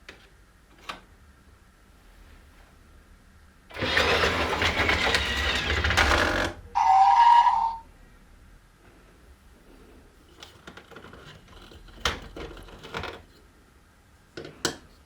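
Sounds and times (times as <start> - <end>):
toy train rattling clatter: 3.7 - 7.8
toy train toot: 3.8 - 7.9.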